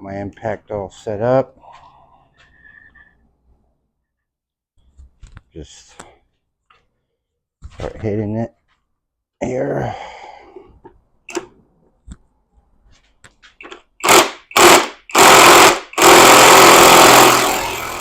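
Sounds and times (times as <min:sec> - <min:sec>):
impact wrench hammering: 0:13.6 - 0:18.0.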